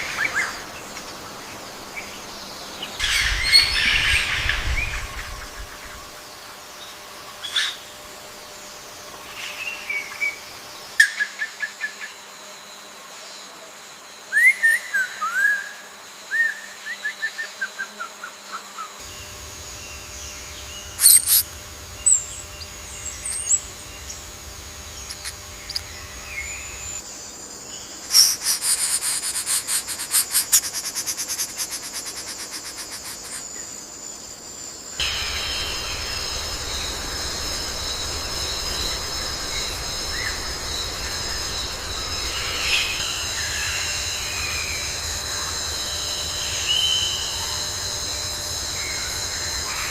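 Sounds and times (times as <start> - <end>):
high insect-like tone: 18.3 - 49.9
birds chirping: 19.1 - 27.0, 27.8 - 33.8
rattling bird trill: 21.0 - 21.4.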